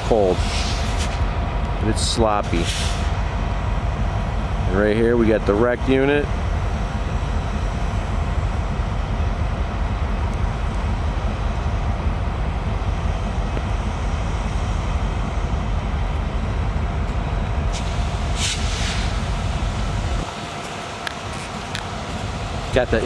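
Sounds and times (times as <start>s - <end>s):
diesel engine rumble: 0.0s - 23.0s
short hiss: 17.7s - 19.3s.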